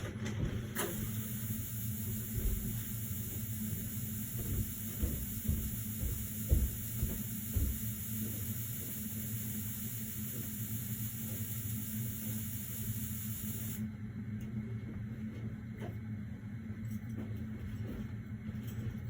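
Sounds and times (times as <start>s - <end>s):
machinery hum: 0.0s - 19.0s
high hiss: 1.0s - 13.8s.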